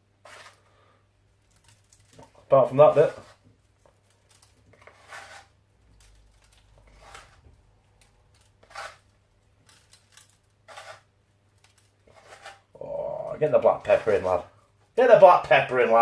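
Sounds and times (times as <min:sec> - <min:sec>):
faint crisp rustles: 0:01.3 - 0:12.6.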